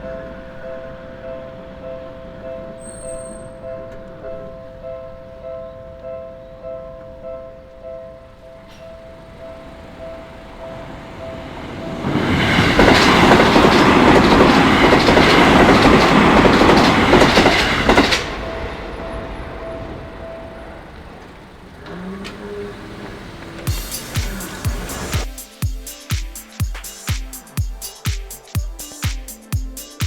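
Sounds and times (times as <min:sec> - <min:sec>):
train wheels clattering over rails: 0:08.7 - 0:25.3
level crossing warning bell: 0:09.0 - 0:21.8.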